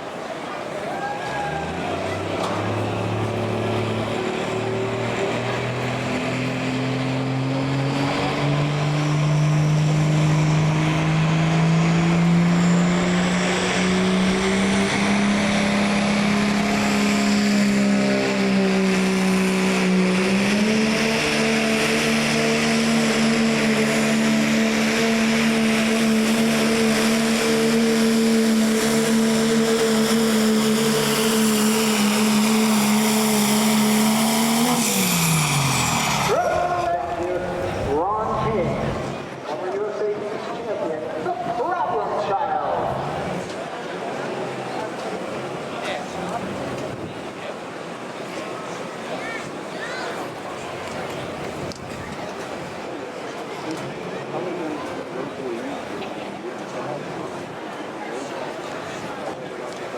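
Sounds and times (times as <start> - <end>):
diesel engine running under load: 1.6 - 39.5.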